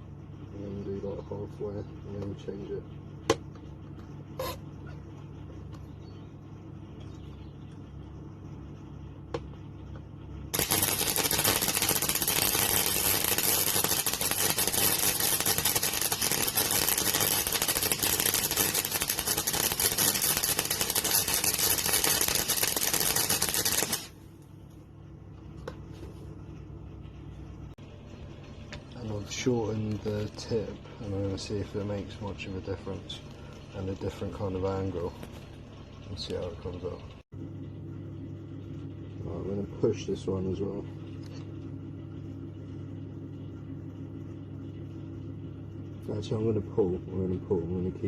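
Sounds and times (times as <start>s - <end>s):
low steady hum: 0.0s - 48.0s
welder arc crackling: 10.5s - 24.2s.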